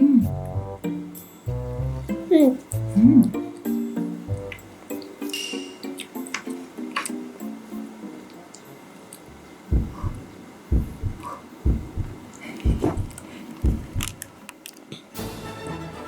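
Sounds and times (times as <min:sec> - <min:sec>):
heartbeat double thumps: 0:09.7 - 0:14.2.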